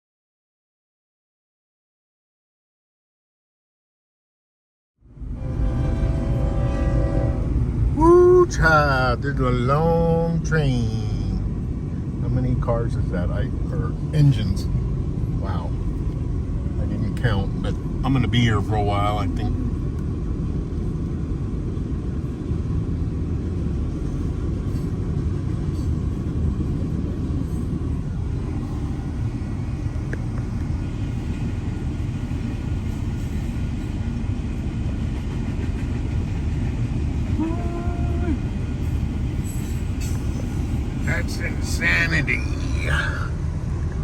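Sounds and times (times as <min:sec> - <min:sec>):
train rumbling past: 0:05.0 - 0:44.0.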